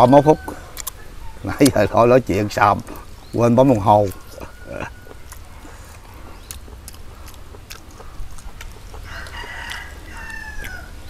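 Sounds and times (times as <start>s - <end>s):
rooster crowing: 0.0s - 1.4s, 4.2s - 6.0s, 9.0s - 11.0s
low steady hum: 0.0s - 11.0s
people chewing: 0.0s - 11.0s.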